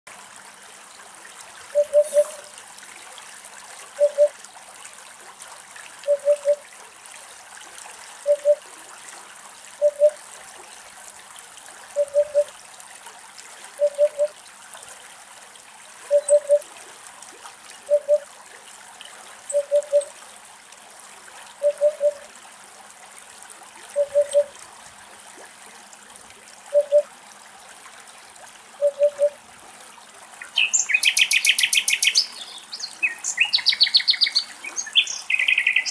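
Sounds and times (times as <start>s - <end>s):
steady background hiss: 1.4s - 4.8s
bird hollow oop oop call: 1.7s - 2.6s, 4.0s - 4.4s, 6.0s - 6.6s, 8.2s - 8.6s, 9.8s - 10.2s, 12.0s - 12.5s, 13.8s - 14.4s, 16.0s - 16.6s, 17.8s - 18.3s, 19.5s - 20.1s, 21.6s - 22.3s, 23.9s - 24.5s, 26.7s - 27.1s, 28.8s - 29.4s, 30.4s - 35.9s.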